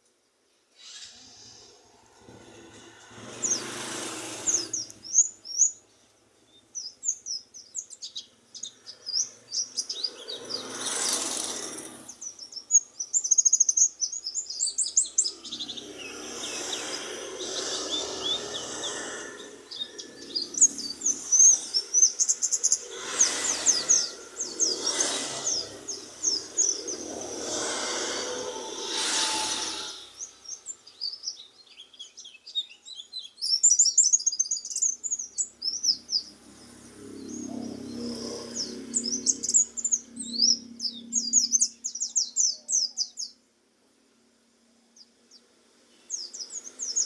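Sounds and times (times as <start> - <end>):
bird chirping and trilling: 0.8 - 43.4, 45.0 - 47.0
rushes of noise: 0.9 - 5.3, 9.3 - 12.5, 15.2 - 30.8.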